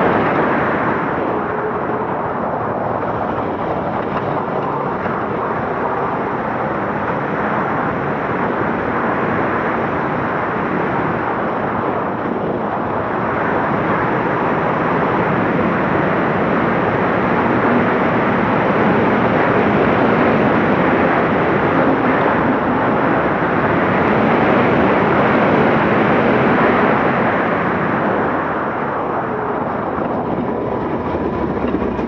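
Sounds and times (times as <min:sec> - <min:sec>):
truck diesel engine running hard: 0:00.0 - 0:07.8, 0:26.7 - 0:32.0.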